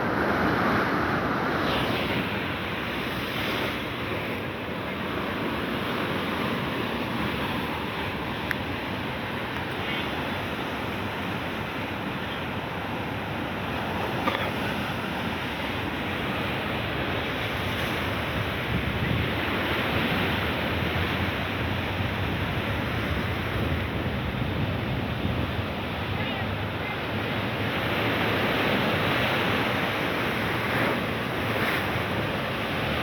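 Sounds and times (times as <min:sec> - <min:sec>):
sea waves breaking on shore: 0:00.0 - 0:33.0
wind rumbling on microphone: 0:15.0 - 0:33.0.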